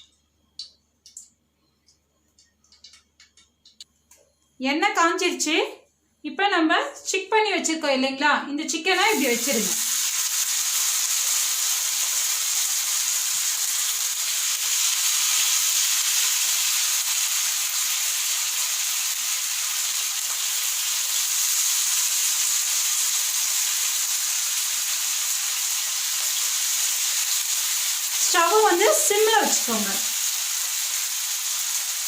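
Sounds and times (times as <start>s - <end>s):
kebabs sizzling in hot oil: 8.8s - 32.0s.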